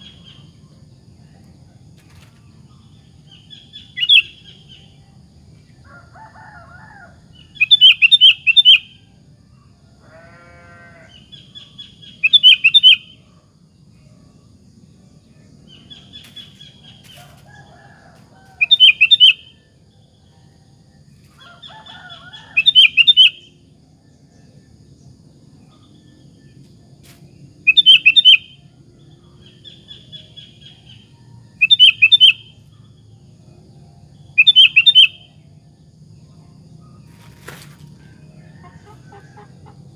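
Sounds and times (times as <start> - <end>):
faint lower bird calls: 27.7 - 28.6, 34.4 - 35.4.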